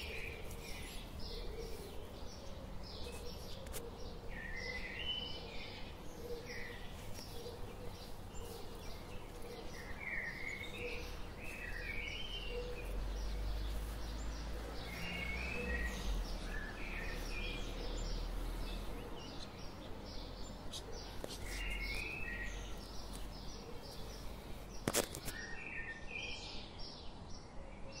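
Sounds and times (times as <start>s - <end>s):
small birds chirping: 0.0s - 27.4s
outdoor background noise: 0.0s - 28.0s.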